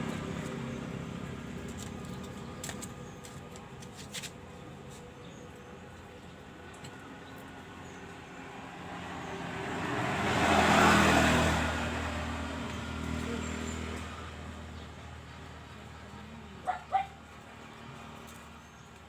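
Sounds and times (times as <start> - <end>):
vehicle driving past: 7.4 - 16.5
dog barking: 16.6 - 17.2.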